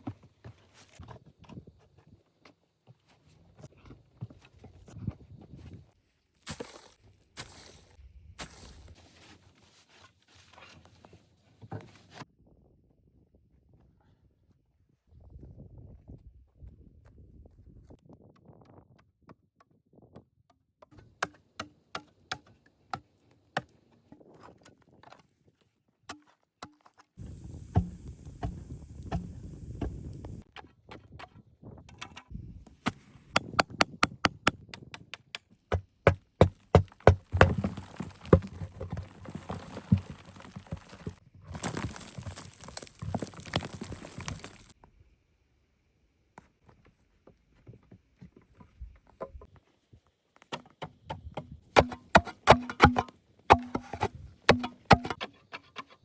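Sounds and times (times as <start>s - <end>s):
tool chopping wood: 32.9s - 39.0s, 50.5s - 55.3s.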